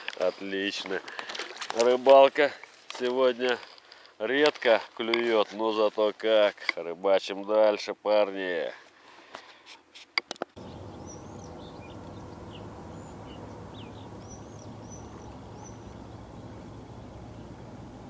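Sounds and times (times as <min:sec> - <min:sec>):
small birds chirping: 0:10.6 - 0:17.7.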